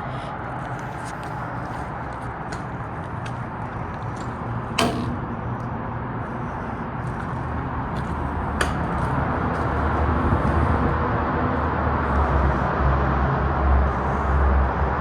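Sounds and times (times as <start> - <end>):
distant highway traffic rumble: 0.0 - 15.0
sharp knocks: 4.2 - 5.4, 8.0 - 9.3.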